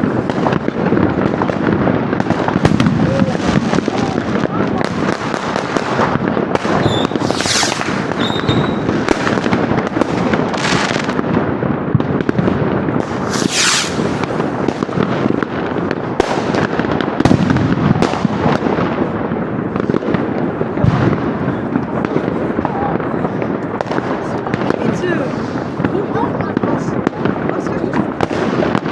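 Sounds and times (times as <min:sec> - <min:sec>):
firecracker bangs and crackling: 0:00.0 - 0:28.9
fireworks hissing rushes: 0:00.0 - 0:28.9
short thin firework whistle: 0:06.8 - 0:08.9, 0:13.3 - 0:14.0.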